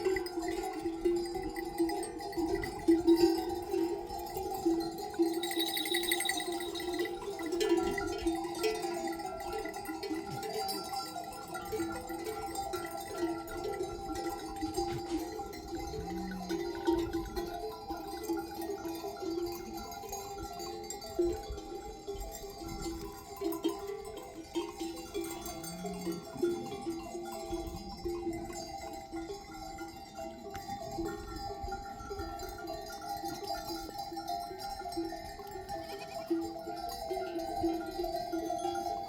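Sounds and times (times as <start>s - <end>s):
sheep bells clanking: 0.0s - 39.0s.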